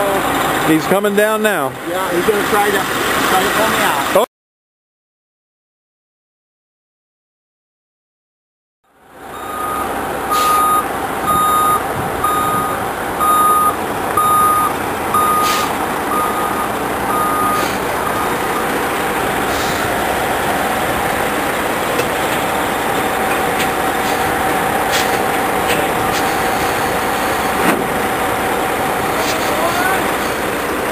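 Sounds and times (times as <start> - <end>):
truck engine running: 0.0 - 4.2, 8.9 - 30.9
truck reversing alarm beeping: 9.3 - 30.8.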